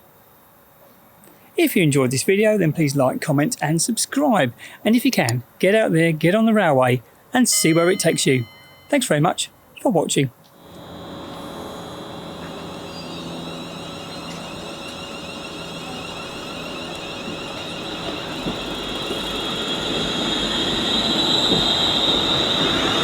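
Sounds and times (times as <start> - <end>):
electric train traction whine: 7.5 - 9.4, 10.4 - 23.0.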